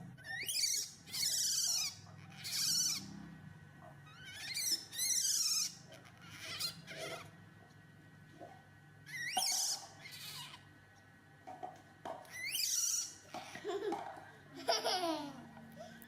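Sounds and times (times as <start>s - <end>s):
baby monkey crying: 0.2s - 3.2s, 4.1s - 7.3s, 9.1s - 10.7s, 12.3s - 13.6s.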